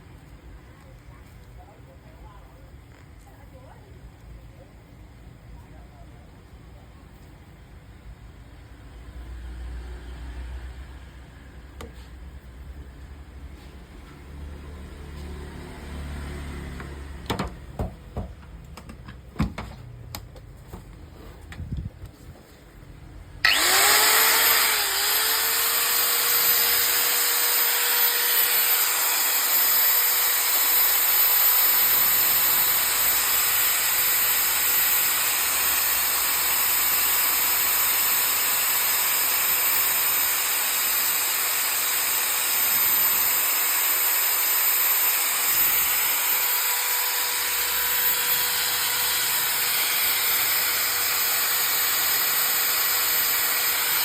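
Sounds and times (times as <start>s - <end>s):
angle grinder whining: 23.4s - 54.0s.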